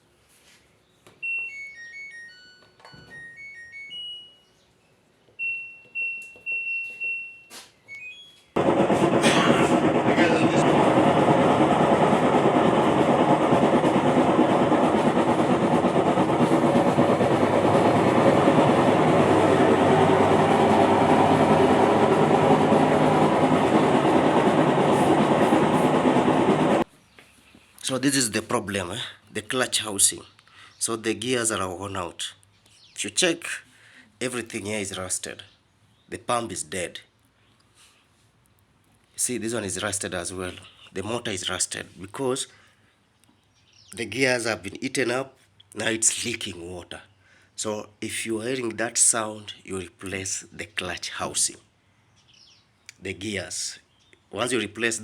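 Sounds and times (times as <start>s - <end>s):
washing machine grinding noise: 8.6s - 26.8s.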